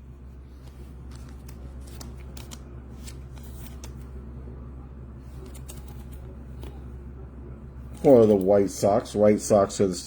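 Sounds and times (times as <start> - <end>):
trading cards clicking and sliding: 0.3 - 4.2, 5.2 - 6.9.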